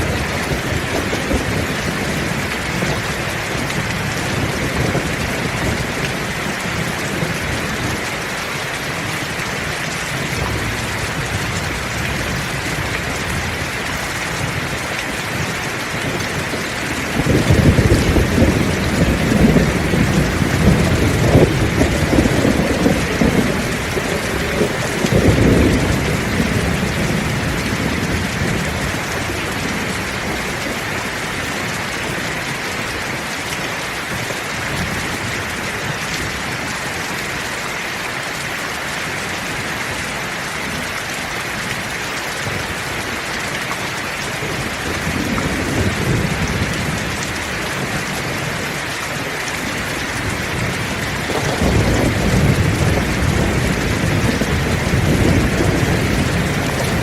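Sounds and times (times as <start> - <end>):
thunder rumbling: 0.0 - 33.2, 44.1 - 48.8, 49.5 - 57.0
heavy rain falling: 0.0 - 57.0.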